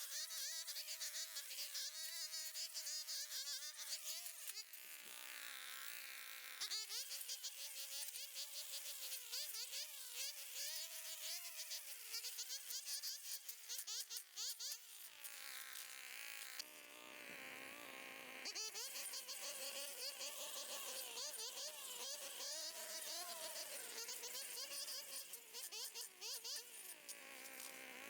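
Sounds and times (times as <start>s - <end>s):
trimmer line cutting grass: 15.2s - 28.0s.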